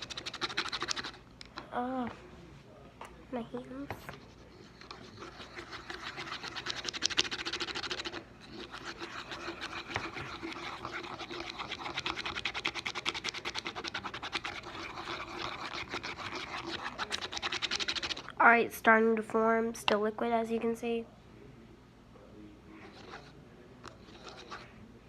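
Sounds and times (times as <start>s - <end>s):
utensil scraping while stirring slime: 0.0s - 1.2s, 3.7s - 18.4s, 22.8s - 24.7s.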